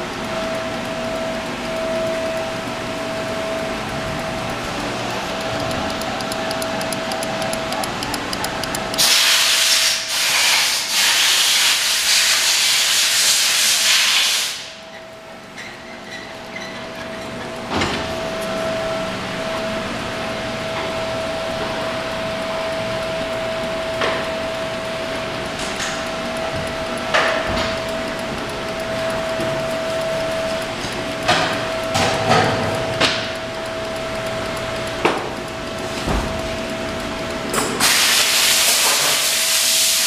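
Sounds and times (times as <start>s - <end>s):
loud hiss: 9.0s - 14.7s.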